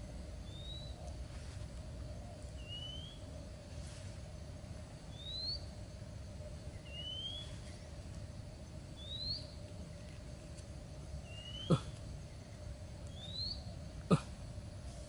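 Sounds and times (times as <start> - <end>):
bird whistling calls: 2.6 - 3.2, 5.1 - 5.7, 6.8 - 7.6, 9.0 - 9.5, 11.3 - 11.9, 13.1 - 13.7.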